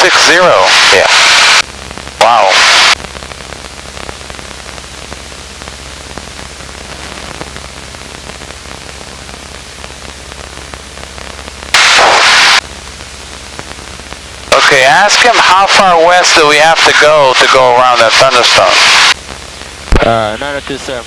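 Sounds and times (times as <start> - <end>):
intercom hiss: 0.0 - 1.6, 2.2 - 3.0, 11.7 - 12.6, 14.5 - 21.0
faint static crackles: 0.0 - 21.0
loud burst of radio static: 0.0 - 21.0
aircraft engine drone: 2.2 - 3.0.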